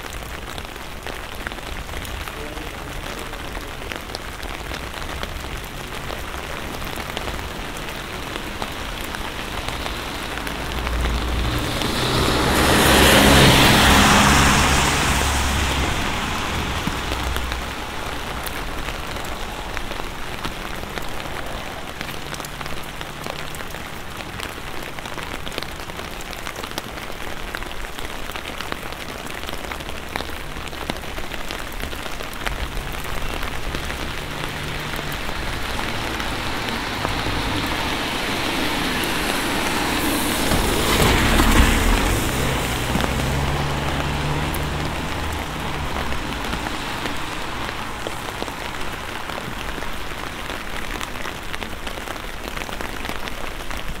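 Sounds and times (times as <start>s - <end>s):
car passing on wet road: 0.0s - 54.0s
rain pattering on an umbrella: 0.0s - 54.0s.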